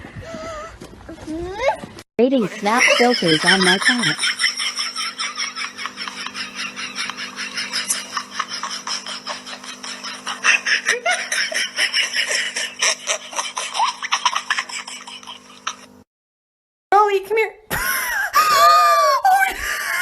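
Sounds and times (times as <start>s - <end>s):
steady low hum: 2.4s - 16.0s
person laughing hard: 2.5s - 15.9s, 17.7s - 20.0s.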